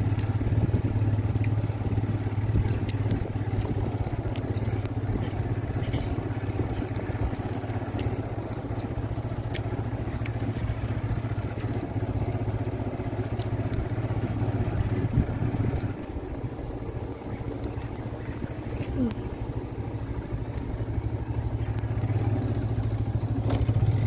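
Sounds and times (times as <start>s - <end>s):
engine humming: 0.0s - 24.0s
faint clicks: 1.2s - 1.6s, 2.6s - 16.2s, 20.4s - 20.8s.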